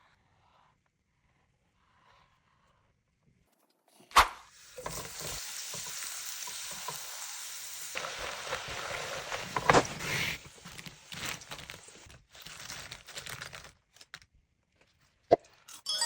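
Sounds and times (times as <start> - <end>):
food sizzling in a pan: 4.5 - 12.0.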